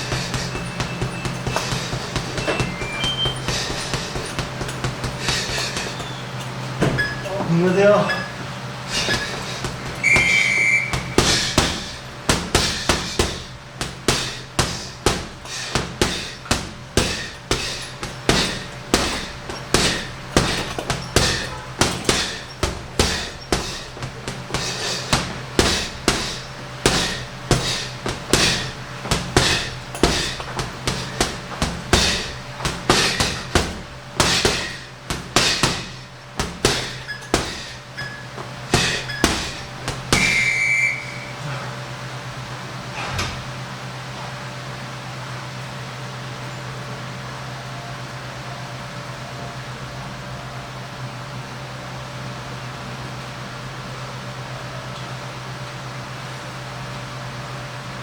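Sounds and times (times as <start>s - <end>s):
punches thudding on heavy bag: 0.0s - 8.0s, 8.9s - 40.6s
short electronic beep: 10.0s - 11.1s, 40.3s - 41.4s.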